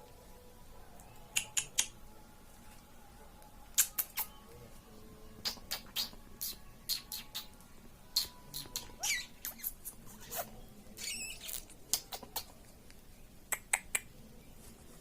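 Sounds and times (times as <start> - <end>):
parrot squeaking: 8.2 - 12.4.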